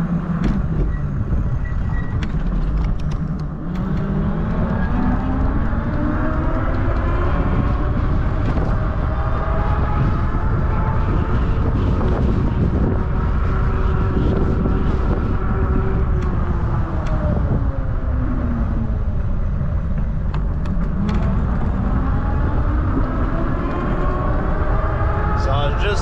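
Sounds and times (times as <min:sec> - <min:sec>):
wind rushing over microphone: 0:00.0 - 0:26.0
electric bike motor whine: 0:04.0 - 0:20.2.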